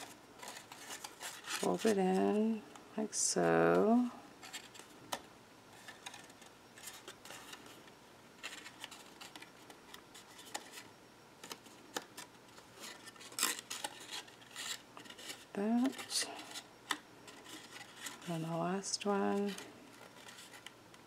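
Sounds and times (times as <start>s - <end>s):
paper rustling: 0.0s - 2.3s, 8.4s - 18.4s.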